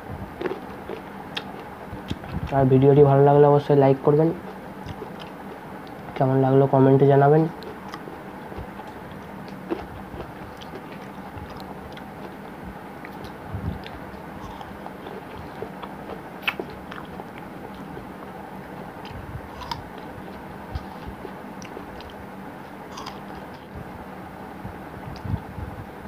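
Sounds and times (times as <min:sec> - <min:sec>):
low steady hum: 0:00.0 - 0:26.0
person chewing fruit: 0:00.3 - 0:02.6, 0:04.4 - 0:06.2, 0:07.6 - 0:23.7
wet mouth clicks: 0:13.1 - 0:17.1.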